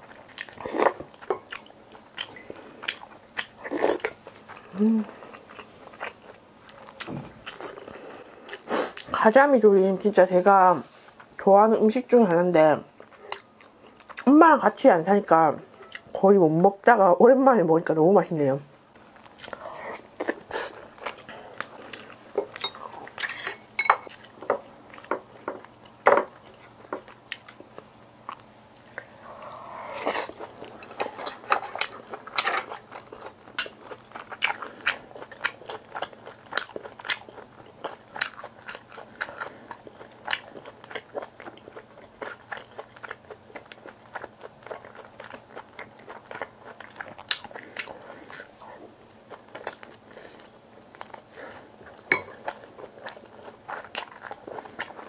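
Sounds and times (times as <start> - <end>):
person chewing and biting food: 19.2 - 55.0.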